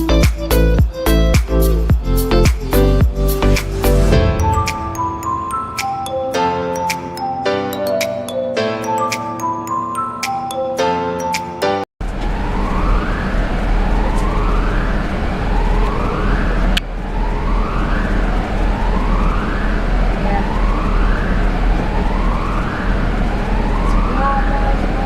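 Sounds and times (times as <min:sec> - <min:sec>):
siren-like wail: 0:04.1 - 0:07.2, 0:12.0 - 0:25.0.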